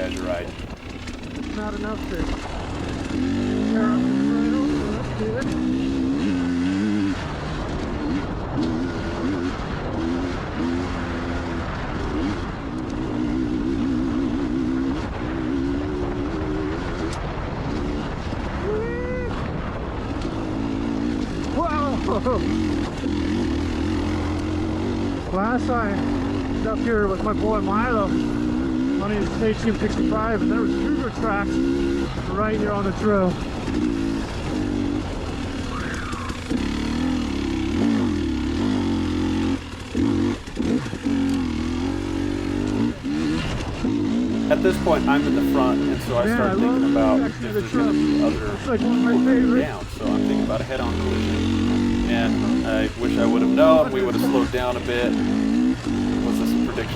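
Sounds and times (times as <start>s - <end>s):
dirt bike engine revving: 0.0s - 18.6s, 19.2s - 56.9s
wind rumble on microphone: 0.0s - 23.1s.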